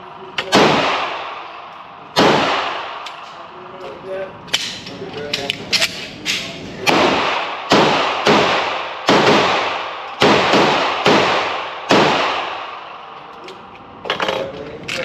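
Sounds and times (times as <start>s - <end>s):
handgun shots echoing: 2.2s - 3.3s, 4.5s - 12.9s.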